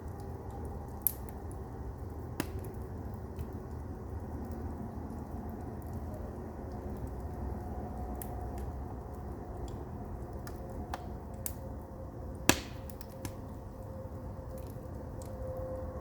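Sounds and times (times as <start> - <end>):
fire low rumble: 0.0 - 16.0
firewood crackling: 0.0 - 16.0
loud sharp fire pop: 12.5 - 12.9.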